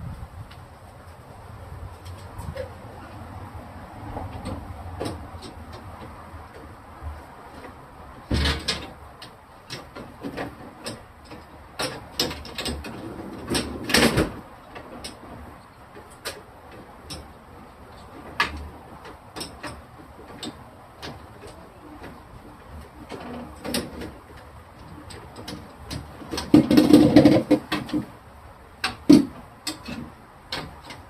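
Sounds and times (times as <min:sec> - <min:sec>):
refrigerator shelves and containers clattering: 0:09.7 - 0:28.2.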